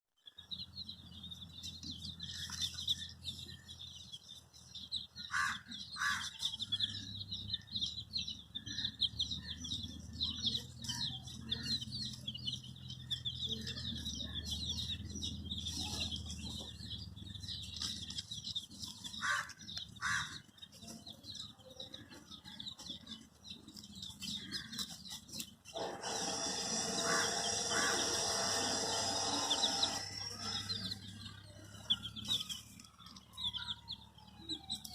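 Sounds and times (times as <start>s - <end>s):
baby chicks peeping: 0.2s - 34.9s
loud steady noise: 25.7s - 31.2s.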